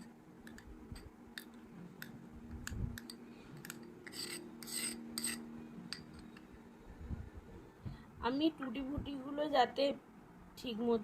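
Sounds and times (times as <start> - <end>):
faint steady hum: 0.0 - 11.0
spoon scraping a bowl: 3.0 - 6.4.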